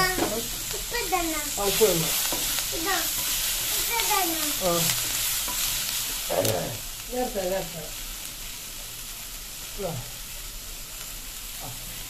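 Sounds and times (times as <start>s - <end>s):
wooden spatula stirring: 0.0s - 6.8s
vegetables sizzling in oil: 0.0s - 12.0s.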